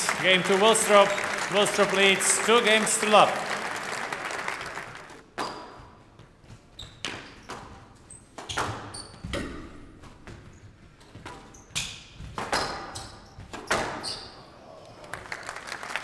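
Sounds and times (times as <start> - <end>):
squash ball hitting racquets and walls: 5.2 - 14.3
shoes squeaking on court: 5.3 - 9.4, 10.1 - 14.4.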